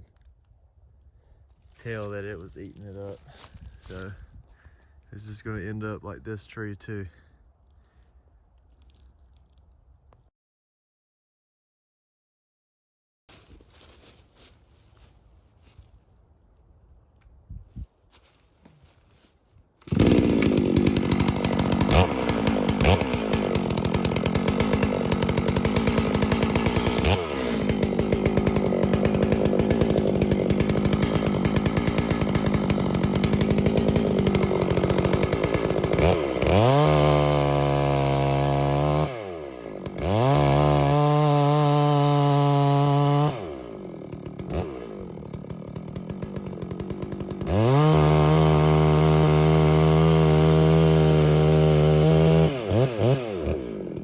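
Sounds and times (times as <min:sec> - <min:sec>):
chainsaw cutting wood: 0:01.9 - 0:04.1, 0:19.8 - 0:54.0.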